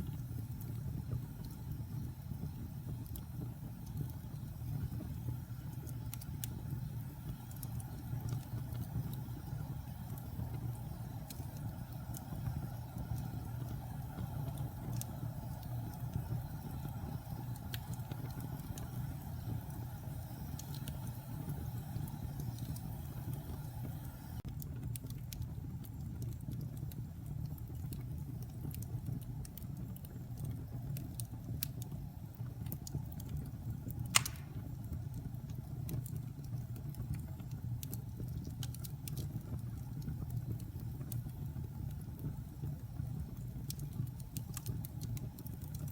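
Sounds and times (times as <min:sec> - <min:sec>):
fire crackles: 0:00.0 - 0:45.9
wood fire roaring: 0:00.0 - 0:45.9
sharp pop from fire: 0:34.1 - 0:34.8.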